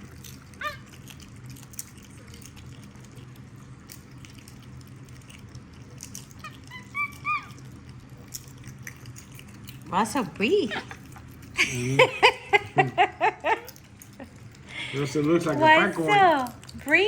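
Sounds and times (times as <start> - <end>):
low steady hum: 0.0 - 17.0
monkeys crunching popcorn: 0.0 - 17.0
monkey high squeaks: 6.5 - 7.6.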